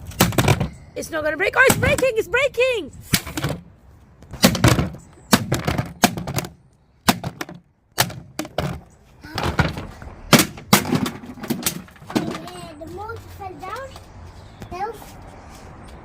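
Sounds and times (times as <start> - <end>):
knocks on plastic body: 4.4 - 8.8.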